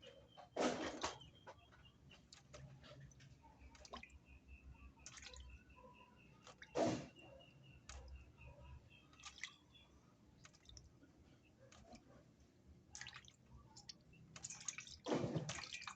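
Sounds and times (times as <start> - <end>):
wet squishes: 3.6 - 4.2, 5.0 - 5.5, 9.0 - 9.8, 10.4 - 10.9, 12.9 - 15.9
water dripping: 3.6 - 4.4, 5.0 - 5.6, 9.0 - 9.8, 10.4 - 10.9, 12.9 - 15.9
water splashes: 9.2 - 9.7, 12.9 - 15.9.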